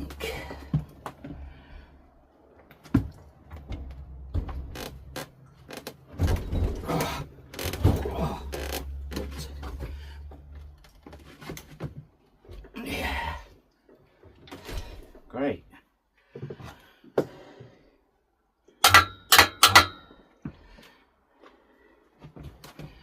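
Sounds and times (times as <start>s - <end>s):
metal knocks and clanks: 2.9s - 10.5s, 18.8s - 20.2s.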